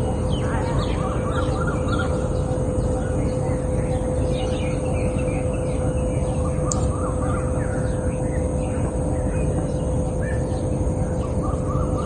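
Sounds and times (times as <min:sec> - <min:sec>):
birds chirping: 0:00.0 - 0:12.0
constant hum: 0:00.0 - 0:12.0
steady low rumble: 0:00.0 - 0:12.0.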